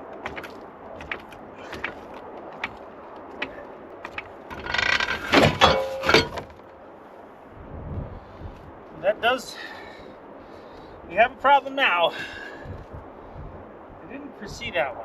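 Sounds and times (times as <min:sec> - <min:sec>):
metal crunching and scraping: 0:00.0 - 0:06.7.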